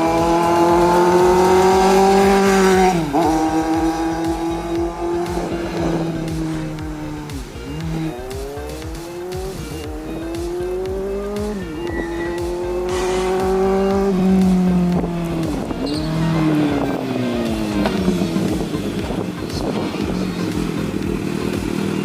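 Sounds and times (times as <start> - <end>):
motorcycle accelerating through gears: 0.0 - 22.0.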